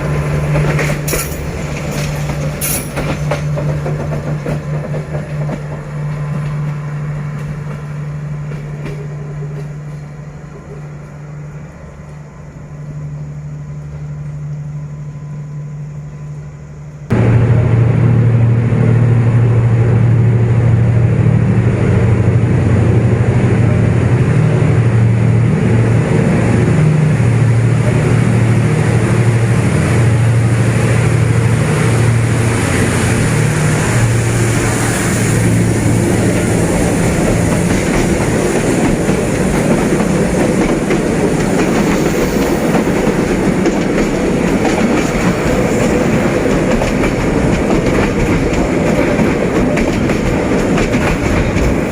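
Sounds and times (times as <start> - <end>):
wheels clattering on rails: 0.0 - 10.2, 30.8 - 51.9
locomotive engine drone: 0.0 - 51.9.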